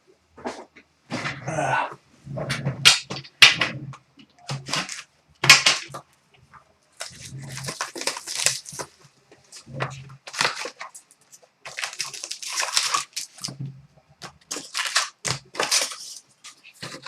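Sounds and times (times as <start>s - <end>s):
foil wrappers crinkling and tearing: 4.5s - 6.0s, 7.0s - 13.6s, 14.2s - 17.0s.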